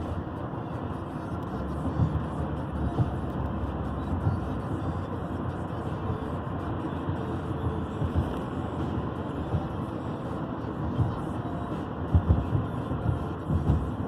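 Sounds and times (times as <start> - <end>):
road and tyre rumble: 0.0 - 14.0
low thumps from road bumps: 1.7 - 3.4, 4.0 - 4.6, 7.9 - 8.6, 9.4 - 9.9, 10.8 - 11.3, 12.0 - 14.0.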